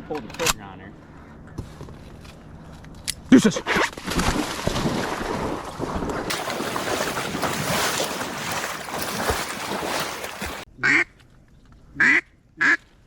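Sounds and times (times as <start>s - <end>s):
duck quacks: 10.8s - 11.1s, 12.0s - 12.8s.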